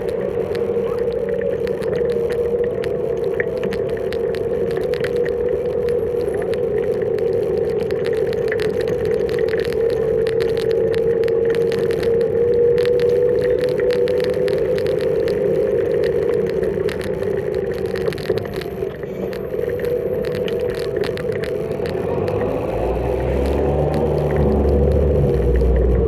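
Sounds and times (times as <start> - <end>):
electric scooter motor humming: 0.0 - 26.0
low rumble: 20.0 - 26.0.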